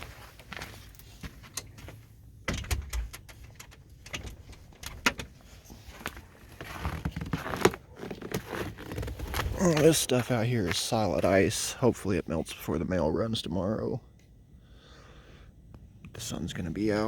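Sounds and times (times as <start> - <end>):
footsteps: 0.0 - 2.2, 5.3 - 11.5
door clicks and knocks: 2.5 - 5.3.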